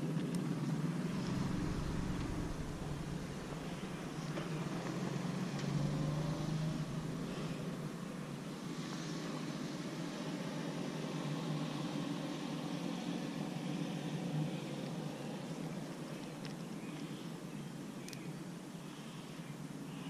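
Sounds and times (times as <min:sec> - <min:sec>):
motor vehicle humming: 0:00.6 - 0:10.4.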